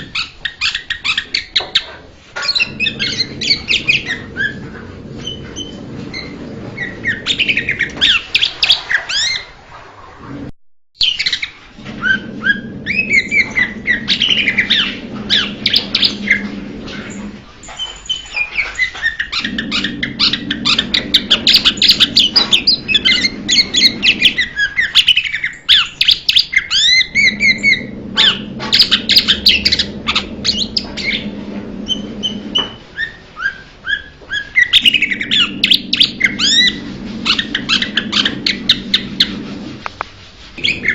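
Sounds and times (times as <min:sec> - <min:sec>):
low steady hum: 0:02.6 - 0:08.9, 0:11.7 - 0:24.7, 0:27.0 - 0:33.2, 0:34.7 - 0:40.9.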